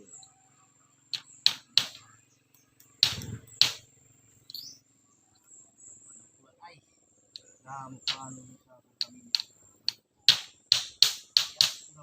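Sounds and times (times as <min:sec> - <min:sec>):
sharp knocks on bamboo: 0:01.2 - 0:02.0, 0:03.0 - 0:03.8, 0:08.1 - 0:08.3, 0:09.0 - 0:12.0.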